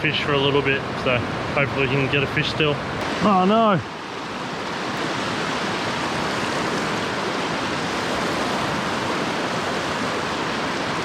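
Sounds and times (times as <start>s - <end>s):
river water rushing over rocks: 2.9s - 11.0s.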